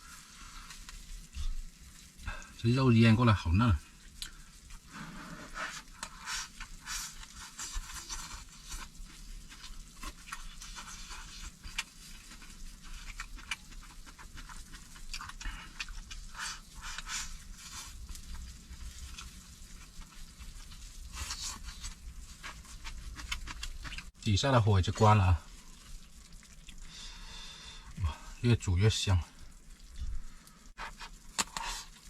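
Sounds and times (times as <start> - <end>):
pot bubbling hard: 0.0 - 32.0
small pops and crackles: 0.1 - 2.5, 3.9 - 24.3, 29.4 - 32.0.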